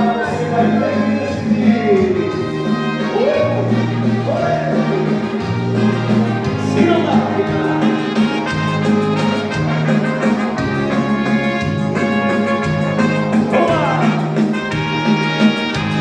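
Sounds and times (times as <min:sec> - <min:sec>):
person singing: 0:00.0 - 0:10.7, 0:13.4 - 0:14.6
latin band music with brass: 0:00.0 - 0:16.0.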